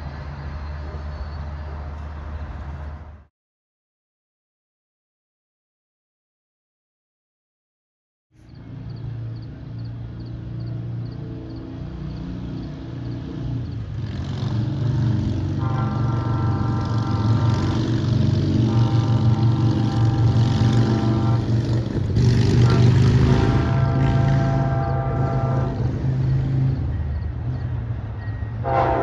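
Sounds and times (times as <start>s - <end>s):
diesel locomotive rumble: 0.0s - 3.3s, 8.4s - 29.0s
train air horn blasts: 15.4s - 27.0s, 28.5s - 29.0s.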